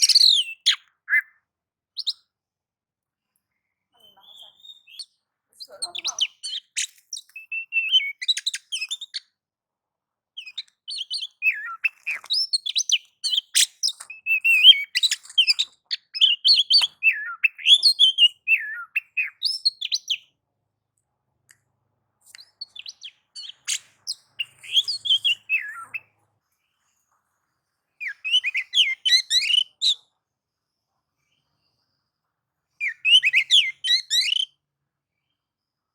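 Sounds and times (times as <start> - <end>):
bird singing chirps and whistles: 0.0 - 1.4, 2.0 - 2.2, 4.0 - 9.2, 10.4 - 20.3, 22.4 - 26.1, 28.0 - 30.0, 32.8 - 34.6.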